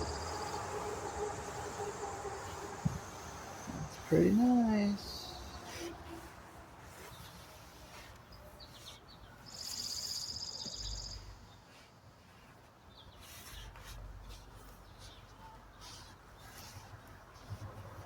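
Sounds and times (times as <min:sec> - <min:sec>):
faint rustling: 0:00.0 - 0:18.0
bird buzzy trill: 0:09.4 - 0:11.4.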